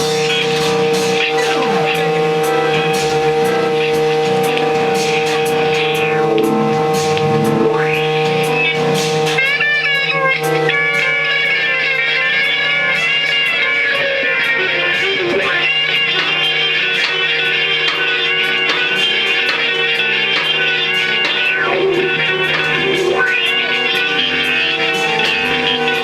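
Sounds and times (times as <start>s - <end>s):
droning held notes: 0.0s - 26.0s
electric guitar: 0.0s - 26.0s.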